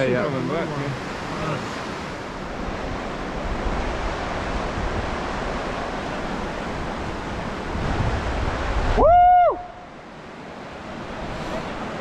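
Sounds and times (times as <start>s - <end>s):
rushing river water: 0.0s - 12.0s.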